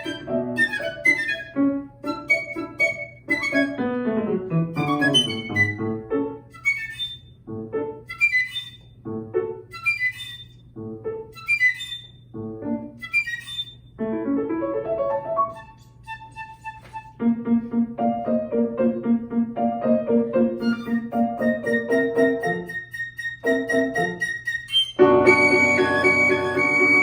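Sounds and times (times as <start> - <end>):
flute: 0.0 - 4.0, 4.7 - 7.3, 8.1 - 8.9, 9.7 - 10.6, 11.4 - 12.1, 13.0 - 13.8, 15.4 - 17.2, 20.6 - 27.0
piano chords: 0.0 - 6.6, 7.4 - 8.3, 9.0 - 9.9, 10.7 - 13.2, 13.9 - 16.2, 17.1 - 27.0.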